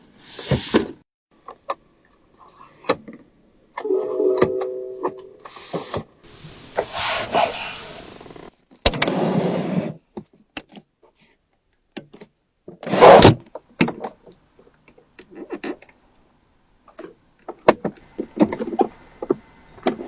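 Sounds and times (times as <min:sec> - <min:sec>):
short rushing noises: 0:06.3 - 0:08.5.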